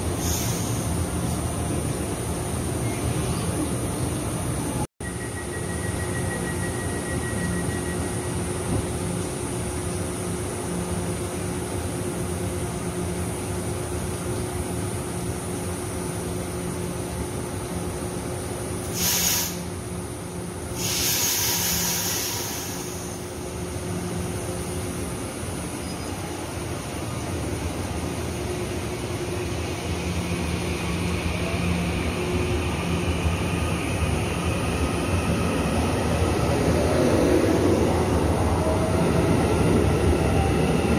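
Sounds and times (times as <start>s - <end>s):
train motor whine and rumble: 0.0s - 40.9s
sharp air hiss: 0.2s - 1.0s, 18.8s - 19.7s, 20.7s - 23.4s
electric train humming: 21.8s - 40.9s.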